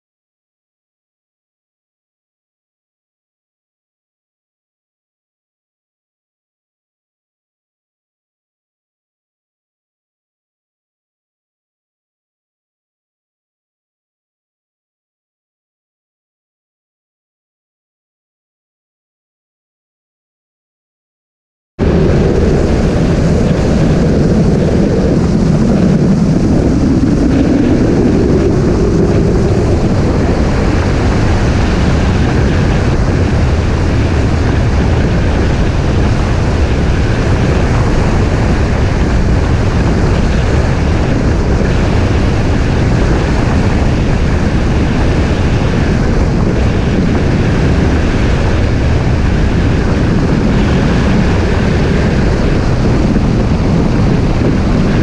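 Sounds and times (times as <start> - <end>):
wind buffeting microphone: 21.8 - 55.0.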